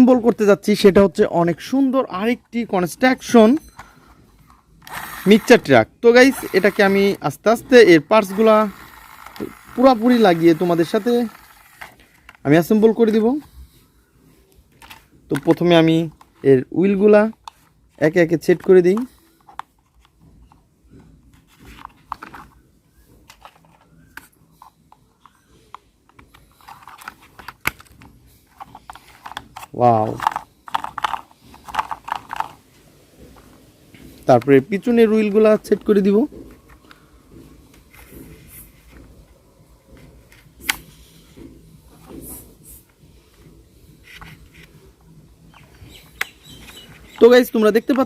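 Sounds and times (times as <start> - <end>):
toy parts clicking and scraping: 1.6 - 13.7, 14.6 - 20.6, 21.3 - 22.6, 23.2 - 32.7, 44.0 - 44.8, 45.5 - 48.0
plastic clicks: 8.2 - 12.4, 23.2 - 32.6.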